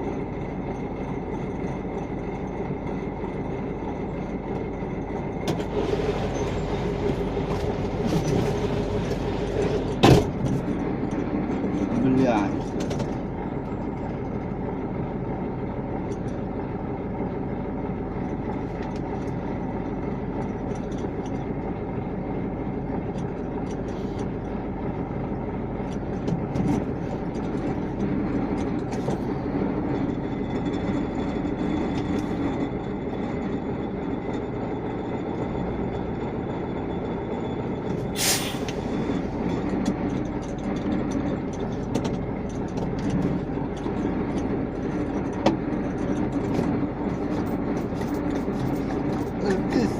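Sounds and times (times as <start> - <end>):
truck diesel engine running: 0.0 - 49.9
air hissing: 38.2 - 38.8.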